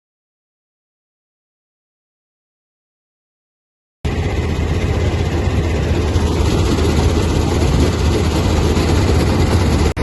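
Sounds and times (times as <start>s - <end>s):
heavy engine droning: 4.1s - 10.0s.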